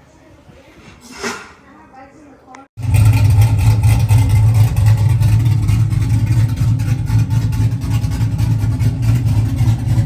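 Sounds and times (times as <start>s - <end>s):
truck engine droning: 2.8s - 10.0s.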